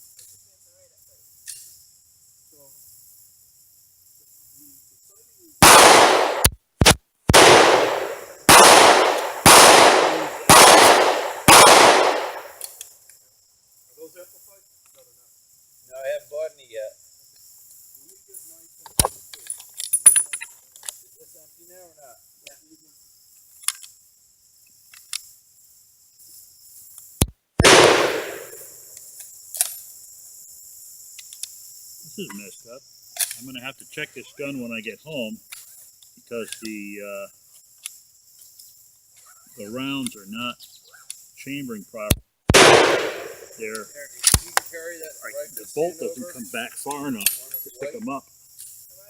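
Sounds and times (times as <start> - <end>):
loud gunshots: 5.6 - 12.6, 27.6 - 28.7, 42.5 - 43.5
loud rifle shot: 5.6 - 12.6, 27.6 - 28.7, 42.5 - 43.5
faint small clicks: 23.5 - 24.0, 24.9 - 25.3, 31.2 - 31.6.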